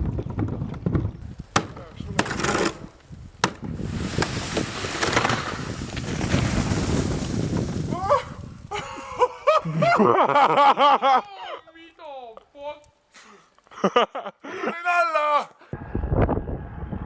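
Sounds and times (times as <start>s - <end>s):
wind and water rushing: 3.4s - 8.8s
person crying out: 7.9s - 8.4s.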